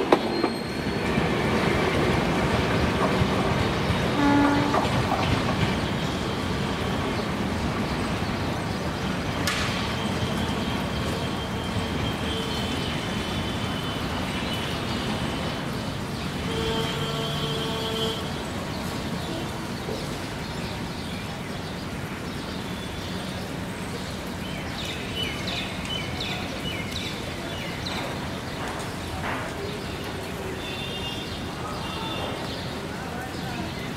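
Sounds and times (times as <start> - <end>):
train coaches rumbling on track: 0.0 - 33.9.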